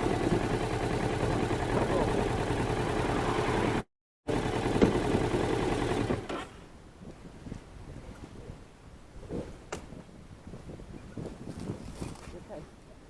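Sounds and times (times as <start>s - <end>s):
motorcycle engine rattling: 0.0s - 6.6s
wind noise: 6.6s - 13.0s.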